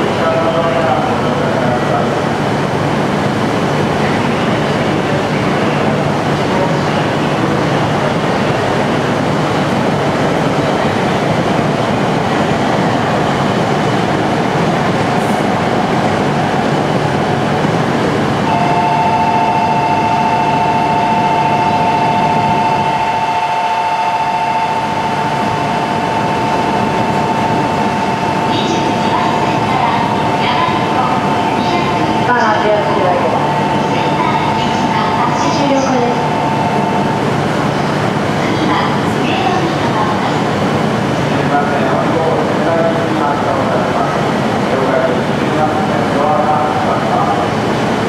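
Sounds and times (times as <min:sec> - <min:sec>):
train equipment hiss and hum: 0:00.0 - 0:48.0
two-tone electronic signal: 0:18.5 - 0:30.3.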